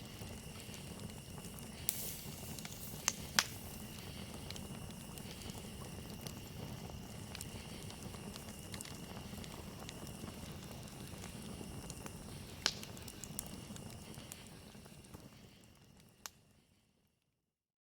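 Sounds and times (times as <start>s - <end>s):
cricket trill: 0.0s - 15.4s
campfire crackling and popping: 0.0s - 16.7s.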